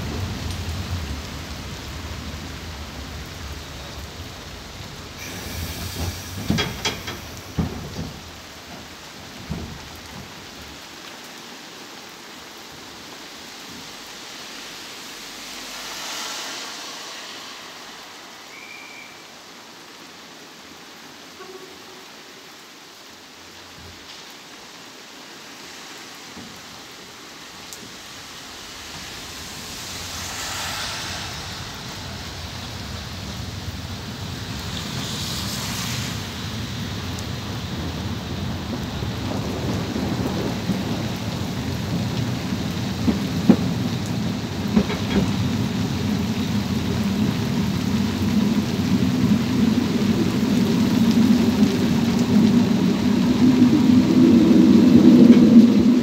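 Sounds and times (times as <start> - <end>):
heavy rain hissing: 0.0 - 56.0
low rumble: 15.1 - 18.6, 27.4 - 36.7.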